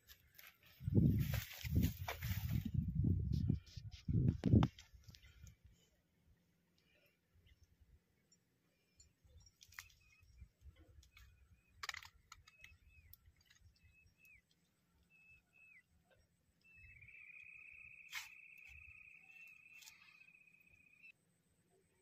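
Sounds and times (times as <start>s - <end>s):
faint high bird chirps: 5.1s - 22.0s.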